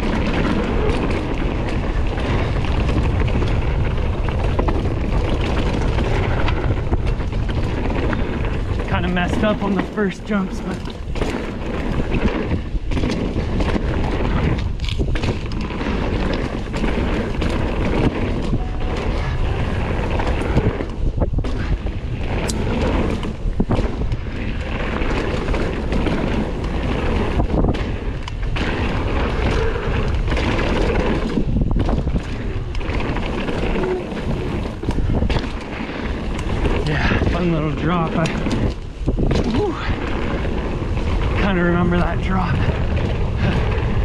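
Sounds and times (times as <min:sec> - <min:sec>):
bike rattling over bumps: 0:00.0 - 0:44.0
tyres rumbling on dirt: 0:00.0 - 0:44.0
wind buffeting microphone: 0:00.0 - 0:44.0.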